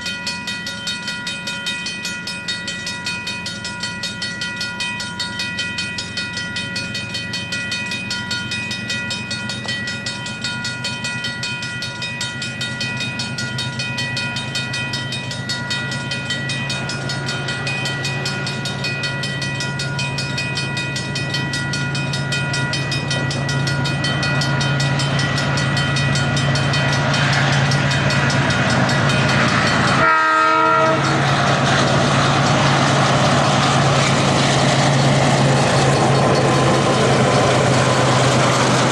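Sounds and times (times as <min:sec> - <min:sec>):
diesel locomotive running: 0:00.0 - 0:38.9
brief horn toot: 0:30.0 - 0:31.1.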